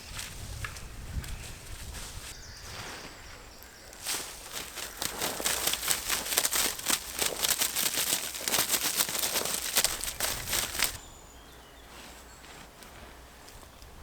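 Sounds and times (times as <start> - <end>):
dry sticks cracking and snapping: 3.9 - 11.0.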